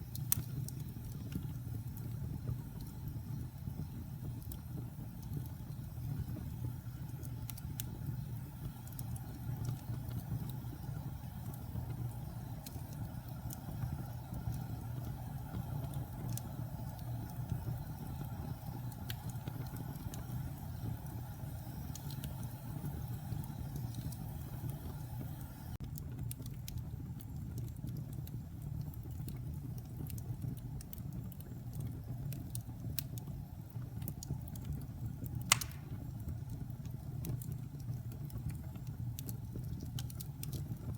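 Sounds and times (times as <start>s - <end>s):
fire crackles and pops: 0.0s - 40.9s
flames rumbling in fireplace: 0.0s - 40.9s.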